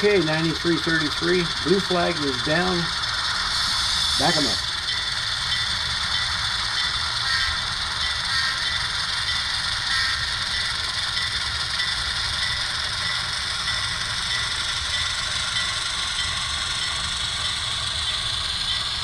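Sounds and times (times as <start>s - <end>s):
model diesel engine sound: 0.0s - 4.6s
light rail rattle: 0.0s - 19.0s.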